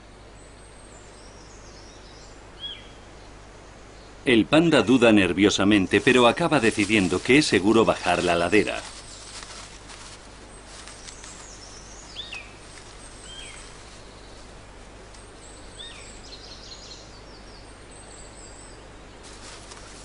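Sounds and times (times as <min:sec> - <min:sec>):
steady background hiss: 0:00.0 - 0:20.0
high thin bird chirps: 0:06.7 - 0:17.0
bird whistled calls: 0:11.4 - 0:13.6, 0:15.6 - 0:17.0.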